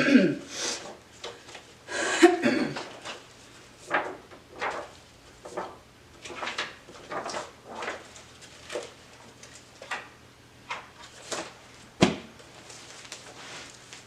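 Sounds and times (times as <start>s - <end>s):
rustling and scraping handling noises: 2.7s - 10.1s, 10.7s - 14.0s.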